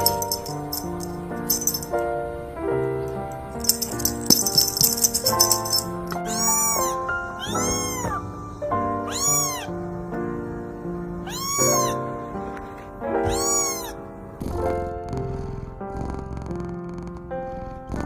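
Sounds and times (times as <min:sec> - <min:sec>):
background music: 0:00.0 - 0:18.0
cat meowing: 0:06.2 - 0:08.4, 0:09.0 - 0:09.8, 0:11.2 - 0:12.1, 0:13.2 - 0:14.0.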